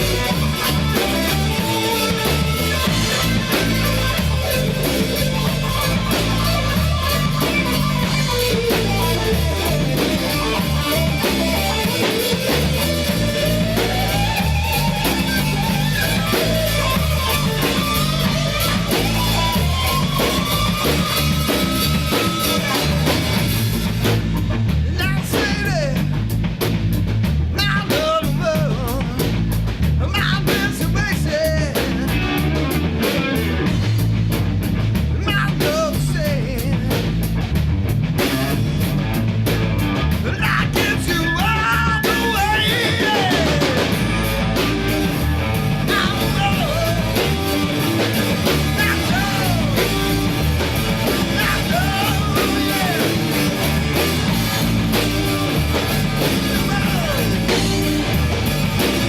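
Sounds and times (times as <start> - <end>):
gliding guitar lead line: 0.0 - 24.6, 41.2 - 59.0
rock band playing: 0.0 - 59.0.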